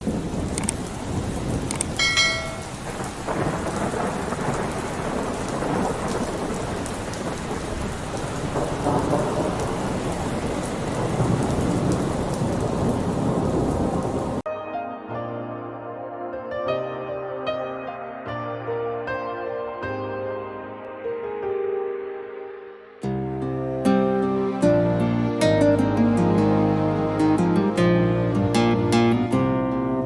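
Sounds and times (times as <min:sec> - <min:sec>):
rolling thunder: 0:00.0 - 0:14.4
heavy rain: 0:00.0 - 0:14.5, 0:23.3 - 0:30.0
high ringing tone: 0:02.0 - 0:02.8.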